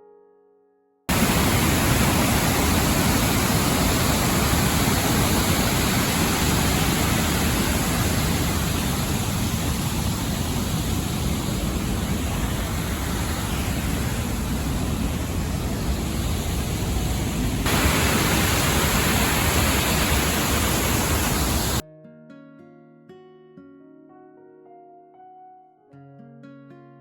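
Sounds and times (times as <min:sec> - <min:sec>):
waterfall rushing over rocks: 0:01.1 - 0:21.8.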